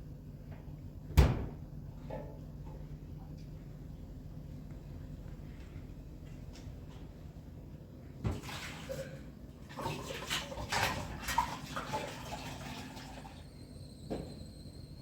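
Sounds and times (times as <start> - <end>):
water pouring and splashing: 8.3 - 13.4.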